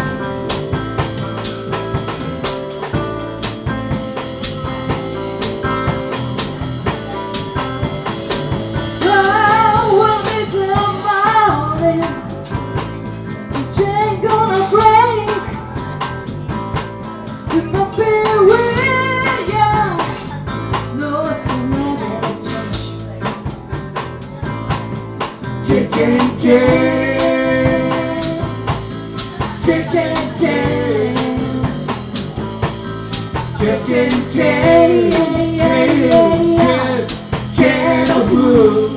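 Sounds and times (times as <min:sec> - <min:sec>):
blues band playing: 0:00.0 - 0:38.9.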